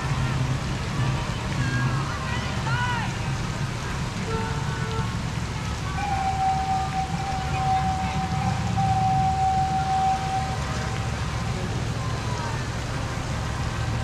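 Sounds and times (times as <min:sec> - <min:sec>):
miniature train rumble and hiss: 0:00.0 - 0:14.0
long high tone: 0:05.8 - 0:12.3.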